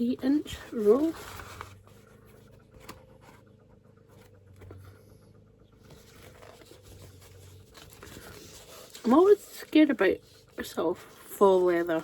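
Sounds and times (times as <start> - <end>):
rustling of craft materials: 0.0 - 5.0, 5.8 - 12.0
low steady hum: 0.0 - 12.0.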